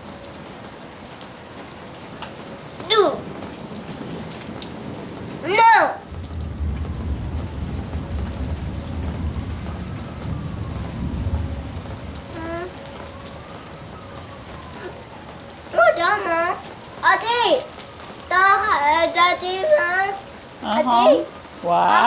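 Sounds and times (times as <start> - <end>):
steady rain pouring: 0.0 - 22.0
thunder rumble: 2.4 - 21.6
child calling: 2.8 - 3.3, 5.4 - 6.1, 12.3 - 12.9, 14.8 - 15.0, 15.7 - 22.0.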